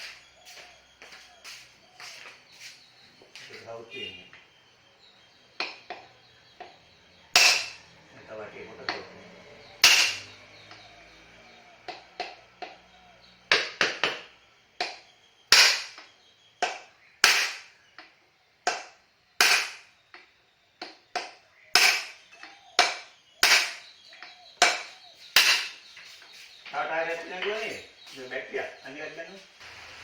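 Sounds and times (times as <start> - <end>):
hammer striking metal: 7.4 - 7.9, 9.8 - 10.8, 14.8 - 17.7, 18.7 - 19.9, 21.2 - 22.2, 22.8 - 23.9, 24.6 - 25.8.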